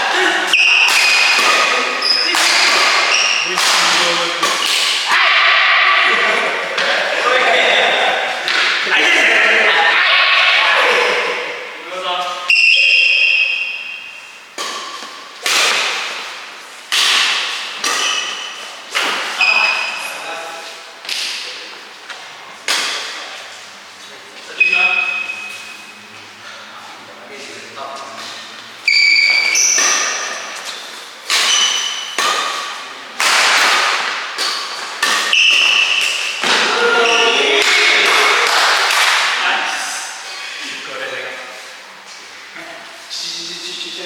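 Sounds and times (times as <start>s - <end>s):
racket hitting shuttlecock: 0.5s - 5.4s, 8.4s - 8.9s, 12.8s - 19.8s, 22.6s - 23.2s, 29.1s - 30.6s, 31.2s - 39.4s.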